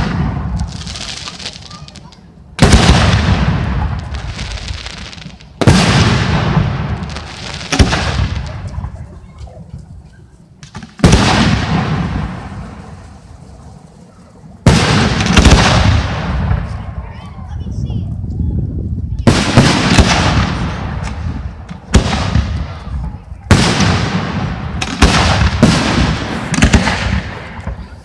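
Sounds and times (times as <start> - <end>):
firework shells booming: 2.6 - 9.2, 10.6 - 13.2, 14.5 - 17.0, 19.2 - 28.0
rolling rumble: 11.6 - 14.7.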